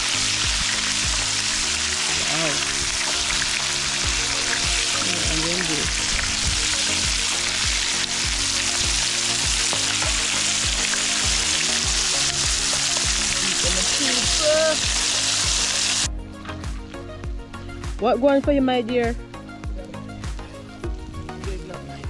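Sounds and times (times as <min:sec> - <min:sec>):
fish frying in hot oil: 0:00.0 - 0:16.1
background music with beat: 0:00.0 - 0:22.0.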